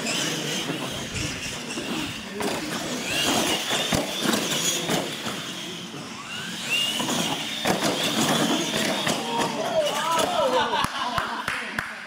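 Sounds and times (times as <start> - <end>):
toy truck motors whining: 0.0 - 10.8
toy trucks clattering on concrete: 0.0 - 10.8.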